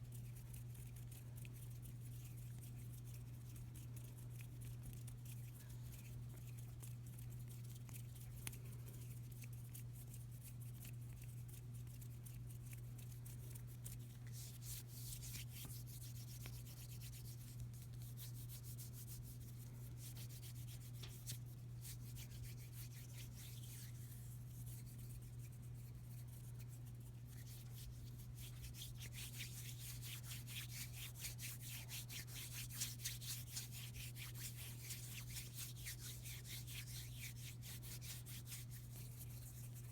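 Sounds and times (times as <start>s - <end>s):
hands rubbing together: 13.3s - 39.9s.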